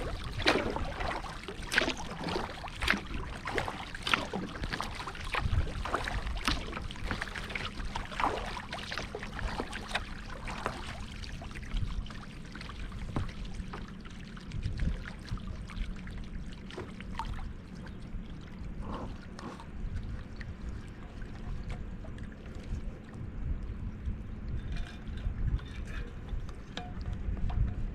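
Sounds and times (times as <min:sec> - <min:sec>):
water splashing and dripping: 0:00.0 - 0:18.5
wind rumble on microphone: 0:00.0 - 0:27.9.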